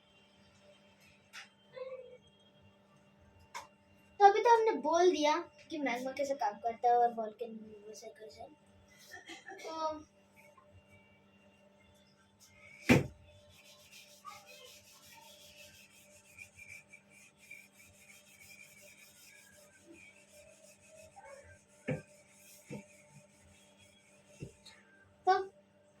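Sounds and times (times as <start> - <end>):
scratchy writing strokes: 13.4 - 24.8.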